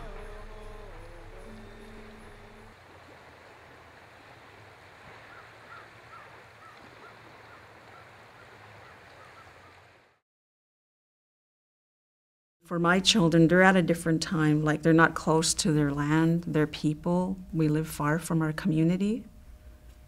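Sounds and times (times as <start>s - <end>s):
music: 0.0s - 2.8s, 13.9s - 20.0s.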